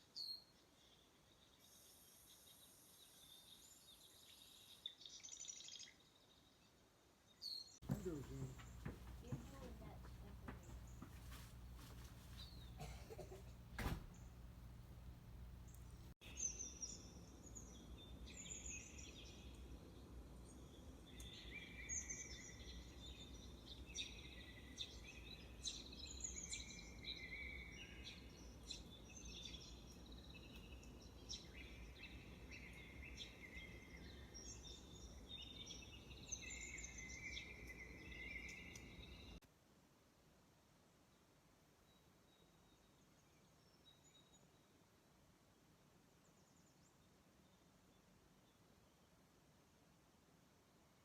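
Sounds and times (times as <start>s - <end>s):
songbirds singing and chirping: 0.0s - 39.4s
low background hum: 7.8s - 21.5s.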